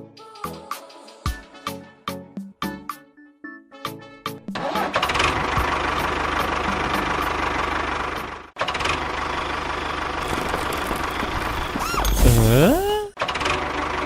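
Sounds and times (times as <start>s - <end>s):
small motor rattling: 8.9s - 12.9s.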